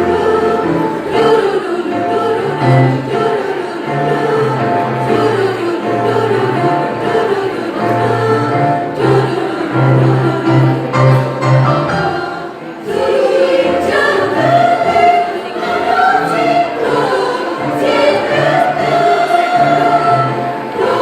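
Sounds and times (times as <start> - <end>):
choir singing in harmony: 0.0 - 21.0.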